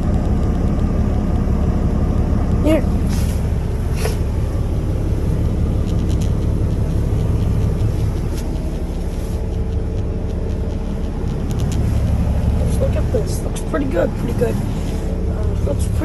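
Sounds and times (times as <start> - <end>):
truck diesel engine idling: 0.0 - 16.0
faint clicks: 5.6 - 12.4.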